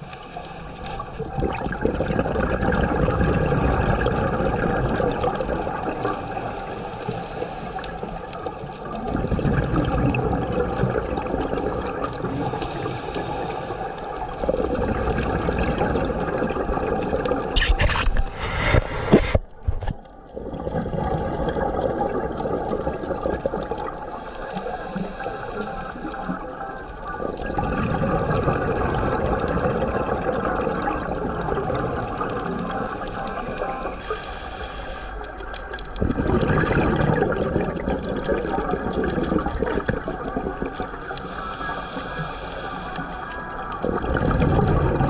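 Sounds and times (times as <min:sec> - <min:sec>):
underwater bubbles gurgling: 0:00.0 - 0:45.0
faint clicks: 0:30.4 - 0:36.1.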